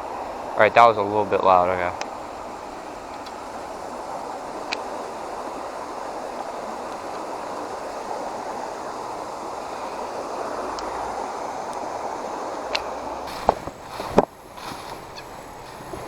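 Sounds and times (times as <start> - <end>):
creek water flowing: 0.0 - 16.0
faint clicks: 3.1 - 3.4, 4.6 - 4.9, 6.8 - 8.1, 10.3 - 11.0.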